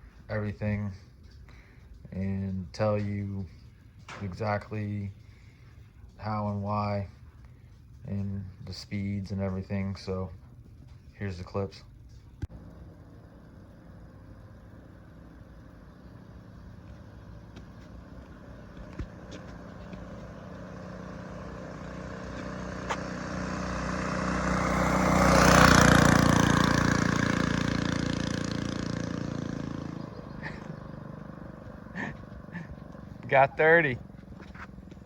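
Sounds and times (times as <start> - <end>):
mini bike engine passing: 7.9 - 35.0.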